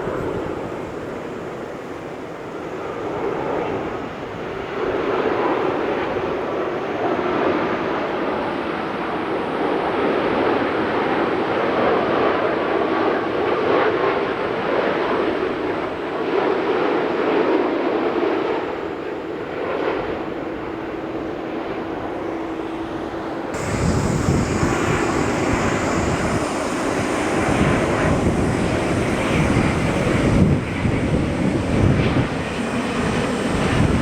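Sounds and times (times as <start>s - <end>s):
jet engine rushing: 0.0s - 34.0s.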